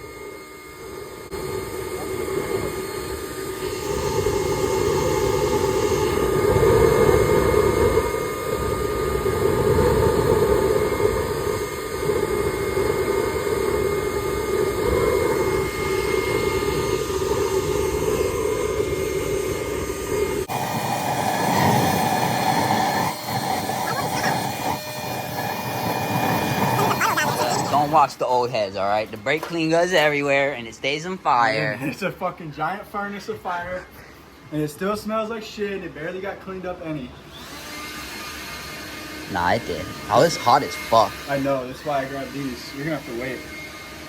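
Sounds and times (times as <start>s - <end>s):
fire roaring: 0.0s - 28.5s.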